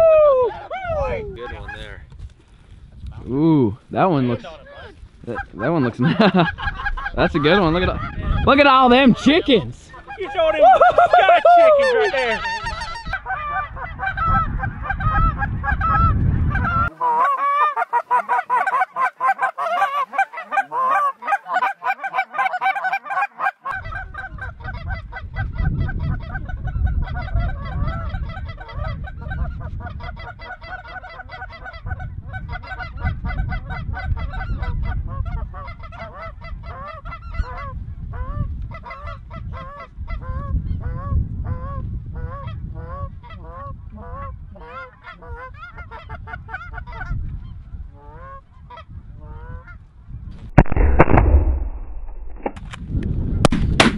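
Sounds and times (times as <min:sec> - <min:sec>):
wind rumble on microphone: 0:00.0 - 0:16.9, 0:23.7 - 0:53.9
geese honking: 0:06.8 - 0:25.1.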